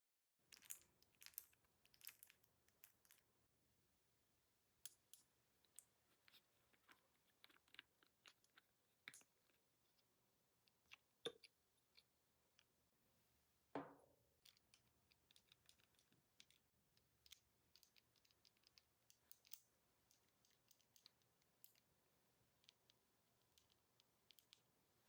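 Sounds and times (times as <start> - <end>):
knock: 13.8 - 14.1.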